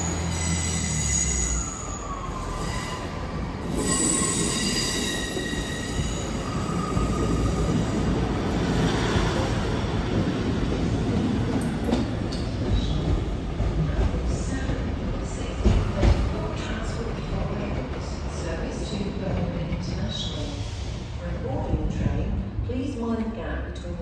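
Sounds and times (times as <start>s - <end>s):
train wheels squealing: 0.0s - 8.0s.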